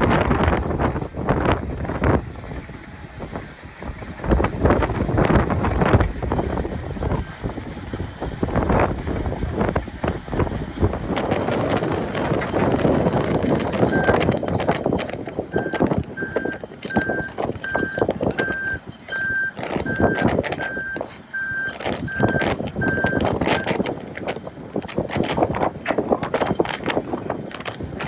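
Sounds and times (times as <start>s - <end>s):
wind buffeting microphone: 0.0s - 28.0s
backup alarm beeping: 2.3s - 9.1s, 13.9s - 14.3s, 15.5s - 23.7s.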